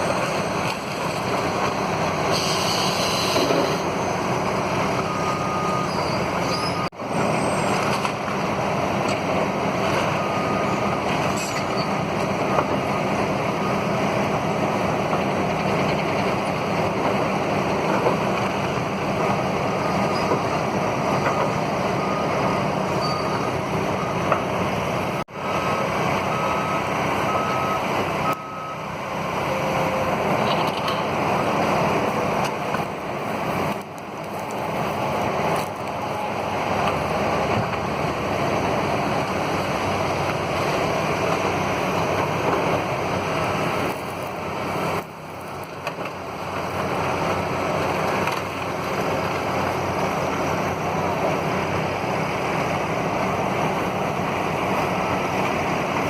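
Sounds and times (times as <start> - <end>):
heavy machinery engine running: 0.0 - 56.0
reversing beeper: 2.3 - 7.9, 10.1 - 13.9, 21.1 - 24.4, 25.4 - 31.8, 35.6 - 36.8.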